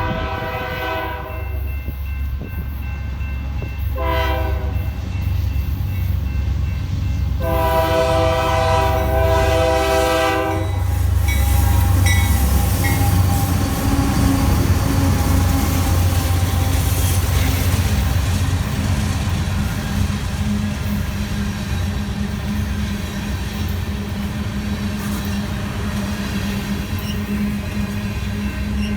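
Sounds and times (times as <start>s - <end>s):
multi-note train air horn: 0.0s - 1.6s, 3.9s - 5.0s, 7.4s - 16.8s
diesel engines rumbling: 5.0s - 28.8s
train wheel squeals: 10.5s - 28.9s.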